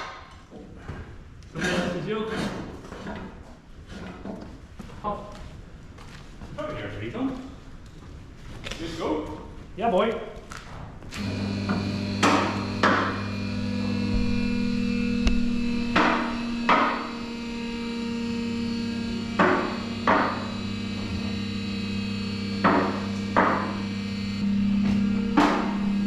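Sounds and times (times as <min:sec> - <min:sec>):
hydraulic motor humming: 0:11.1 - 0:26.0.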